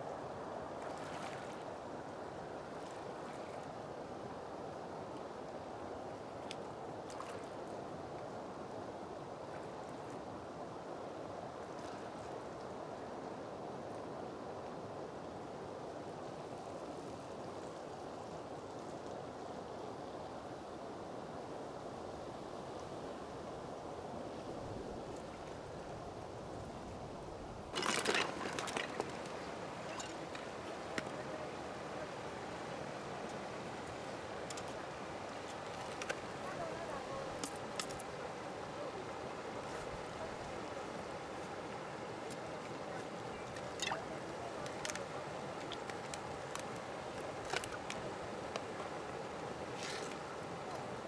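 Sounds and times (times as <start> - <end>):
rush of water: 0.0 - 21.2, 21.9 - 51.0
outdoor background noise: 0.0 - 51.0
flowing water rushing: 27.7 - 51.0.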